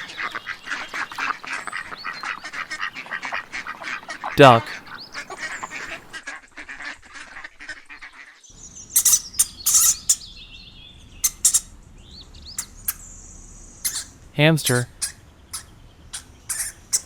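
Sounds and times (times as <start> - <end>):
ducks quacking: 0.0 - 10.2, 13.8 - 17.0
high chirps and whistling calls: 8.5 - 17.0.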